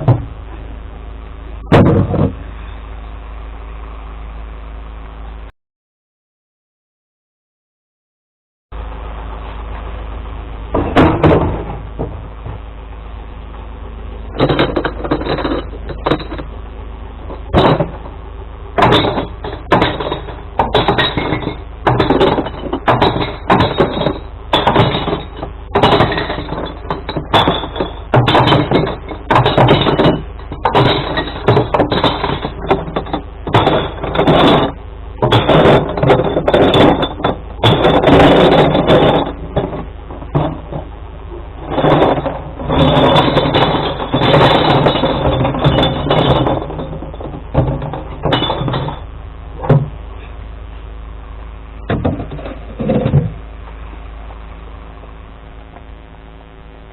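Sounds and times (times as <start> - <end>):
truck idling: 8.8 - 56.2
glass bottles shattering: 18.8 - 40.9, 41.6 - 49.0.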